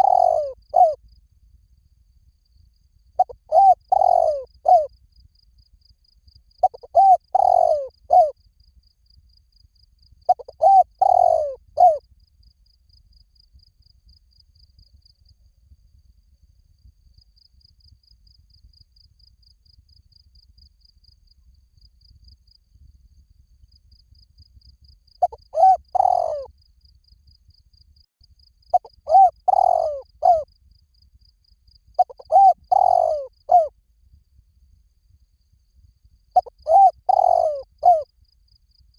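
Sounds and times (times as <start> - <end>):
dove cooing: 0.0 - 1.0, 3.2 - 4.9, 6.6 - 8.3, 10.3 - 12.0, 25.2 - 26.5, 28.7 - 30.4, 32.0 - 33.7, 36.4 - 38.0
faint high pulsing chirp: 0.0 - 1.3, 2.4 - 8.4, 10.1 - 12.0, 23.6 - 33.7, 35.4 - 38.1.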